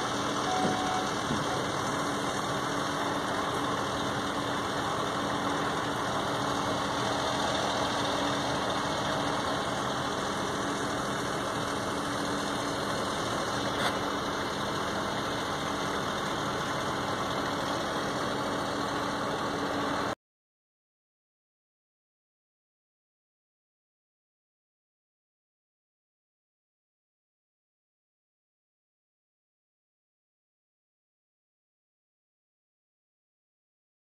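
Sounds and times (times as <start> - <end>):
engine idling: 0.0 - 20.2.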